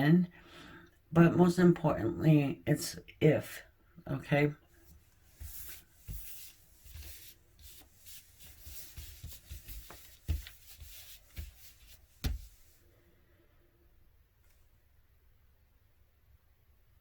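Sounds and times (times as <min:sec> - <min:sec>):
cards rustling and sliding: 0:04.8 - 0:12.8
light taps of cards: 0:08.7 - 0:12.8.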